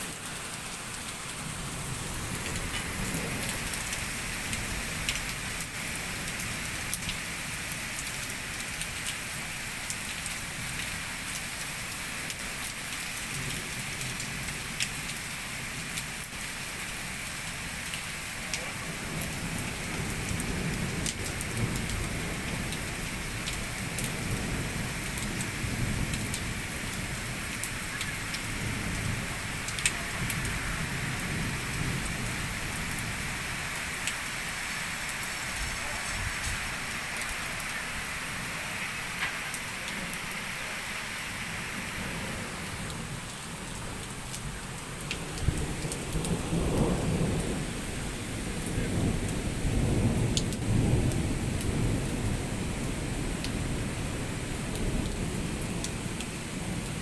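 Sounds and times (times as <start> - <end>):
heavy rain: 0.0 - 57.0
low rolling thunder: 1.3 - 7.2, 18.4 - 40.2, 41.7 - 57.0.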